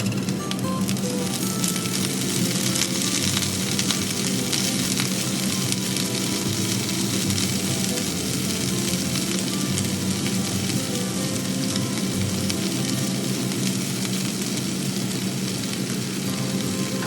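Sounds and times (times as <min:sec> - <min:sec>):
food sizzling in a frying pan: 0:00.0 - 0:17.0
light background music: 0:00.0 - 0:17.0.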